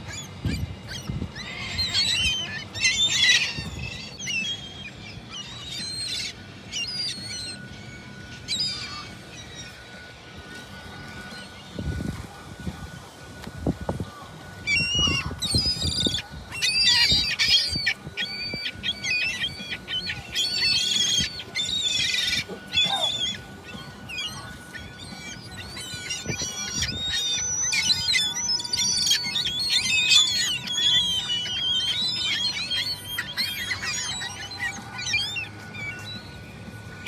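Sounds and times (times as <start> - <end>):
gulls calling: 0.0 - 37.0.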